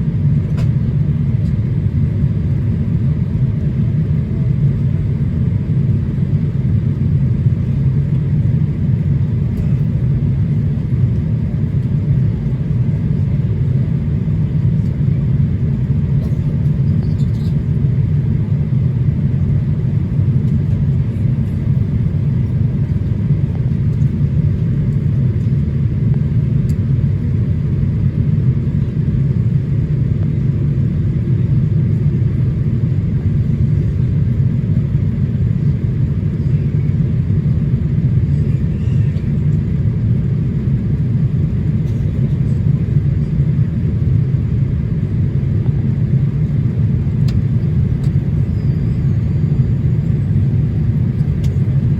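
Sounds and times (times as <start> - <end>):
airplane cabin engine and airflow rumble: 0.0 - 51.9.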